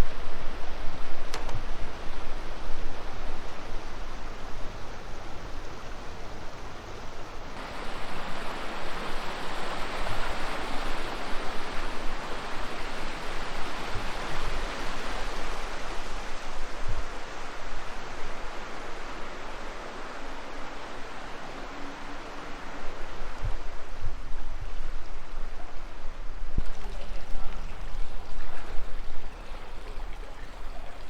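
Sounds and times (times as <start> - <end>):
wind buffeting microphone: 7.5 - 31.0.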